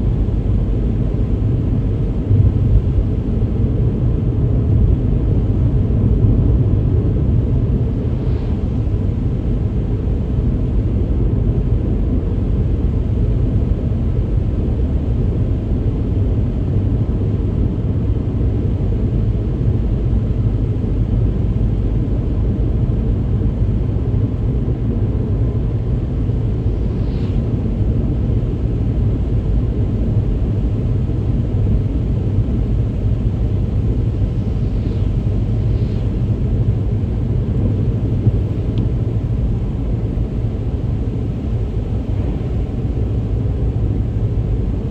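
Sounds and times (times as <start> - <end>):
faint swishes: 26.1 - 28.8, 31.8 - 44.9.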